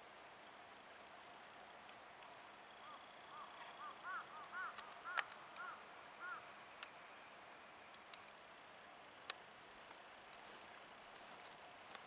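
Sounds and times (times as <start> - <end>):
bird call notes: 2.7 - 7.4.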